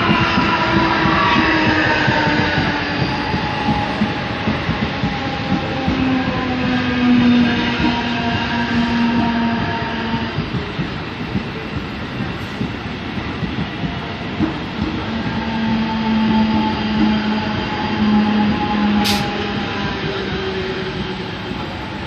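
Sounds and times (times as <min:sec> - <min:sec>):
electric train rumbling past: 0:00.0 - 0:22.0
sharp click: 0:19.0 - 0:19.3.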